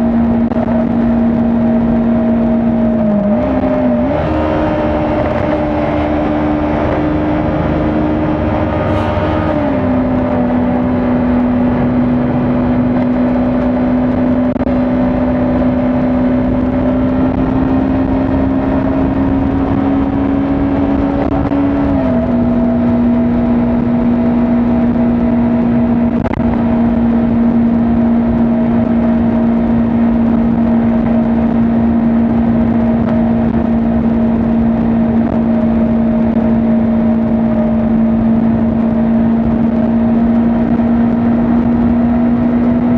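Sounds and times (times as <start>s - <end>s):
motorcycle engine at speed: 0.0s - 42.9s
wind and road rush: 0.0s - 42.9s.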